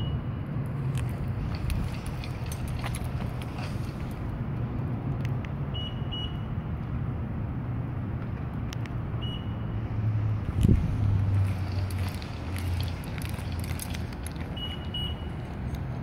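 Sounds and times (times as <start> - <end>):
car engine idling: 0.8 - 4.5, 10.4 - 15.3.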